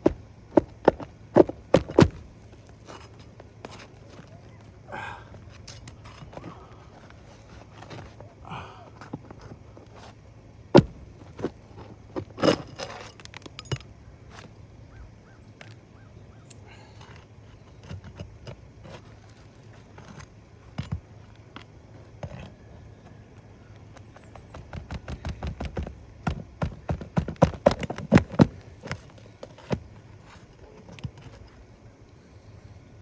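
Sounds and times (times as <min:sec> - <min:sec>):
metal tool tapping on shingles: 0:00.0 - 0:02.3, 0:24.0 - 0:29.9.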